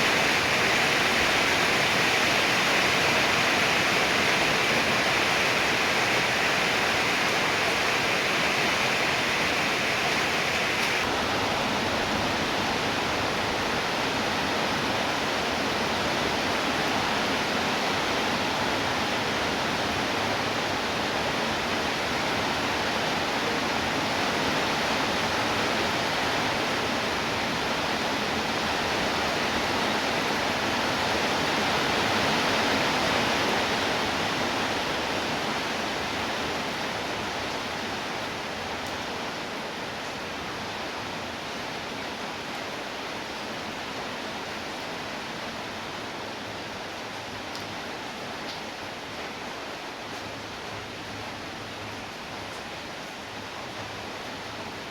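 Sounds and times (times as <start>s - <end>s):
higher hiss: 0.0s - 11.1s
heavy rainfall: 0.0s - 54.9s.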